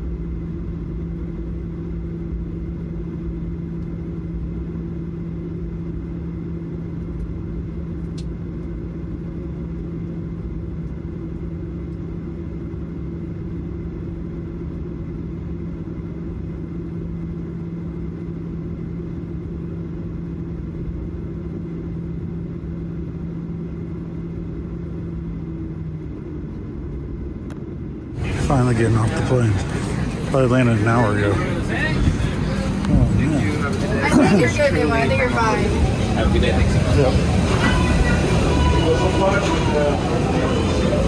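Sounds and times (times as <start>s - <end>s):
airliner cabin rumble: 28.2s - 41.0s
steady hum: 28.2s - 41.0s.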